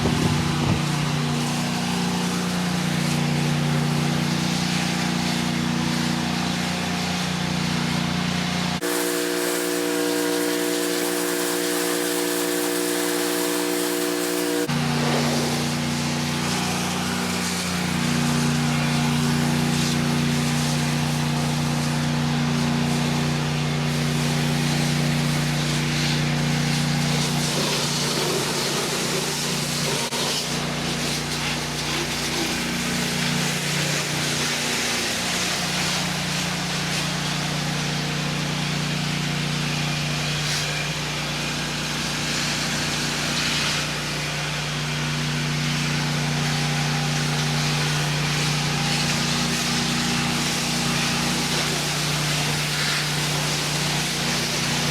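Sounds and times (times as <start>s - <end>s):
pressure washer engine running: 0.0s - 54.9s
water spray hissing: 8.8s - 38.4s, 45.9s - 54.9s.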